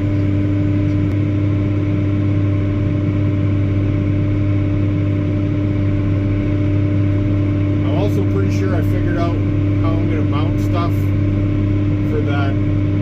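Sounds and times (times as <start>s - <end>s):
steady hum: 0.0s - 13.0s
tractor diesel engine drone: 0.0s - 13.0s.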